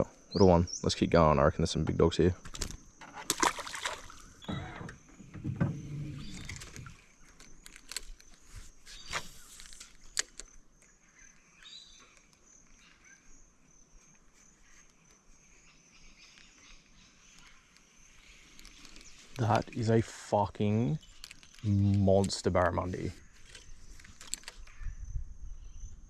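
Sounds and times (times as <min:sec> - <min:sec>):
fishing gear clattering in a boat: 0:01.8 - 0:10.5
sharp clicks: 0:09.1 - 0:10.9.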